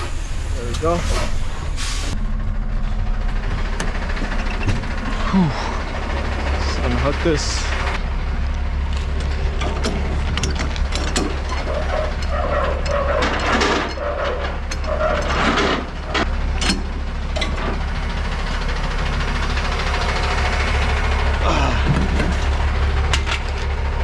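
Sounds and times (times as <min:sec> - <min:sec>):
air hiss bursts: 0:00.0 - 0:02.2
truck engine idling: 0:00.0 - 0:24.0
metallic clicks and clanks: 0:09.2 - 0:16.8.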